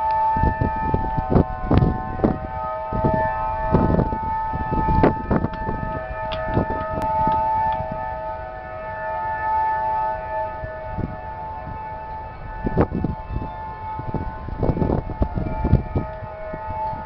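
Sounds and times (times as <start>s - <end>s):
train horn chord: 0.0s - 17.0s.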